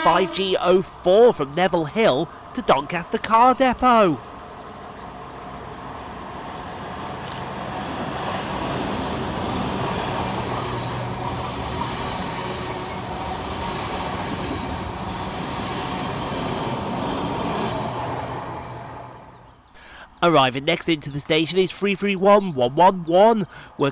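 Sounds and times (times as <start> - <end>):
train wheels rumbling on rail: 4.2 - 19.6.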